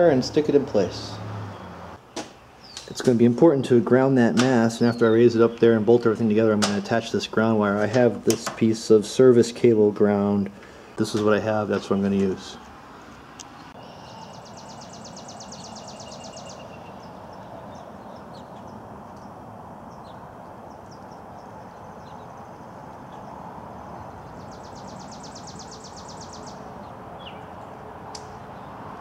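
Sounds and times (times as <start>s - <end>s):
songbird trilling: 13.5s - 27.8s.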